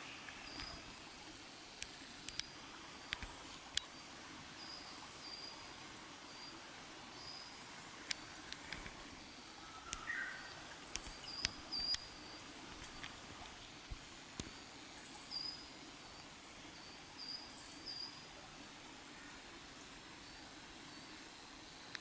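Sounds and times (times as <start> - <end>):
bird twittering: 9.7 - 12.1.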